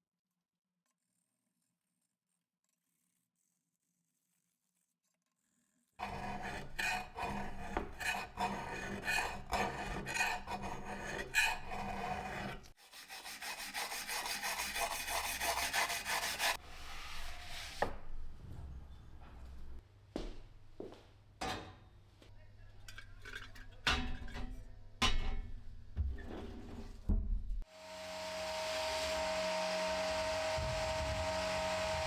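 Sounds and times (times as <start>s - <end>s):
rasping on coffee grinder: 6.0s - 16.6s.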